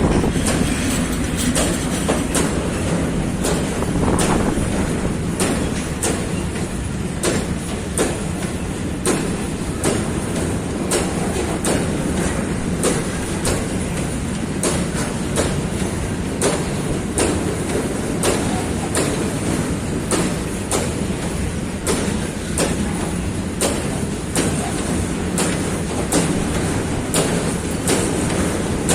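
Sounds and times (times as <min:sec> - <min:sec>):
wheels clicking over rail joints: 0:00.0 - 0:19.5
train rolling rumble: 0:00.0 - 0:28.9.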